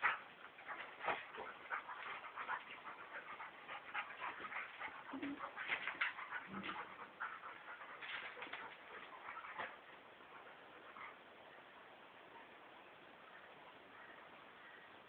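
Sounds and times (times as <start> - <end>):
dogs scuffling and huffing: 0.0 - 11.2.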